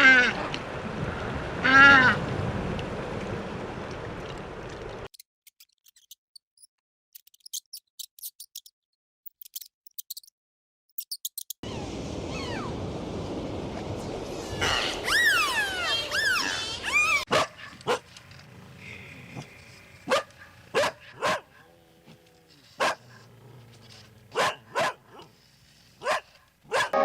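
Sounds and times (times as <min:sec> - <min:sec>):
rising and falling animal call: 0:11.6 - 0:12.9, 0:14.3 - 0:17.3
sliding whistle-like calls: 0:14.5 - 0:17.3.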